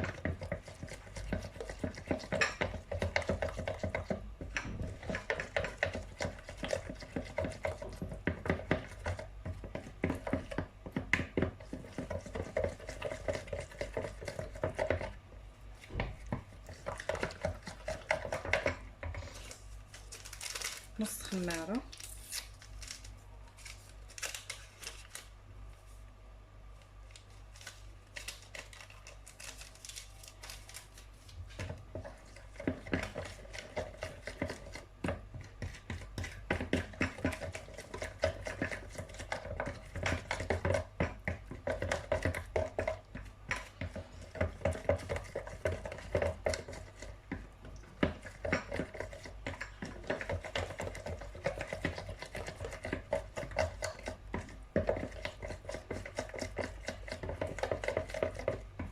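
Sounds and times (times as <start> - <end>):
utensil scraping mixing bowl: 0.0 - 15.2, 15.8 - 19.7, 31.5 - 58.9.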